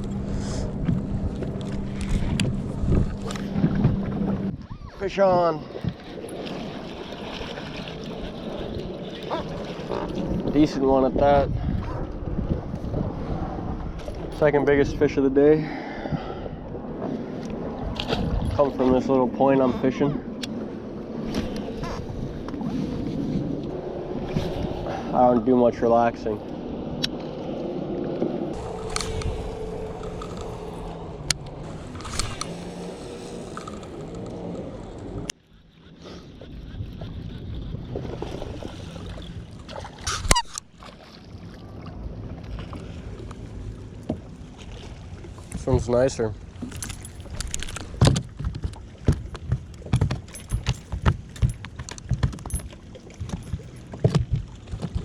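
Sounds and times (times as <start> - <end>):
low rumble of wind and water: 0.0 - 55.0
fishing reel whirring: 31.8 - 37.8
fishing gear knocking and rattling: 46.6 - 55.0.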